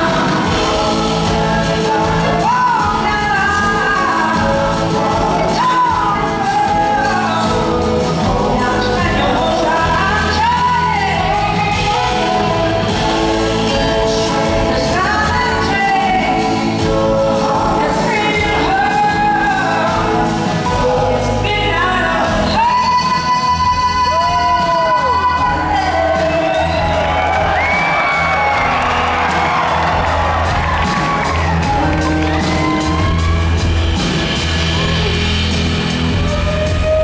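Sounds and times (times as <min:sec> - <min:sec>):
live blues rock band: 0:00.0 - 0:37.0
person singing: 0:00.0 - 0:37.0
audience shouting and whooping: 0:24.1 - 0:37.0.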